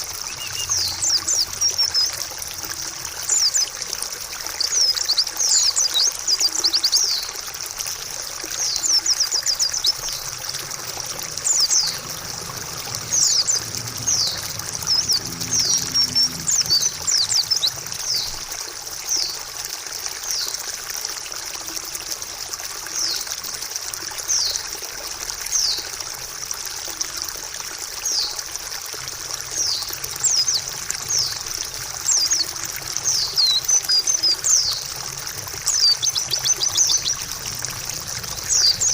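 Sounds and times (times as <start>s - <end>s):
bird chirping song: 0.0s - 2.4s, 3.2s - 3.7s, 4.5s - 7.4s, 8.6s - 18.4s, 29.5s - 34.9s, 35.7s - 38.9s
trickling water: 0.0s - 38.9s.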